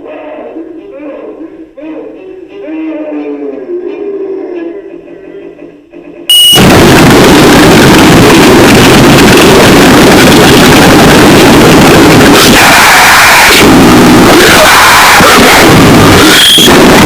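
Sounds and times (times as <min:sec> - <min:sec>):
harsh distorted noise music: 0:04.4 - 0:17.0.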